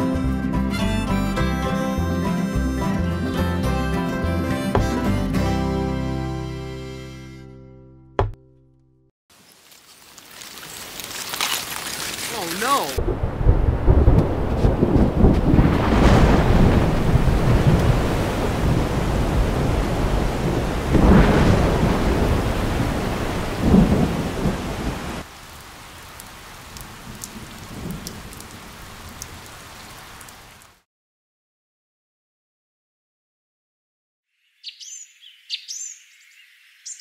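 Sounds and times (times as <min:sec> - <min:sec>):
heavy rain: 0:09.4 - 0:30.8
thunder rumbling: 0:13.0 - 0:25.6, 0:26.4 - 0:29.6
drip ticks: 0:26.2 - 0:28.5.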